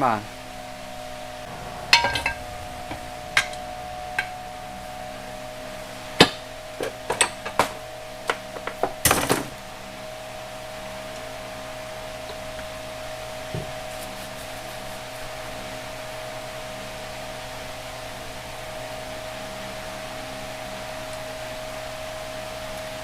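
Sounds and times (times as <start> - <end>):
steady background hum: 0.3 - 15.5.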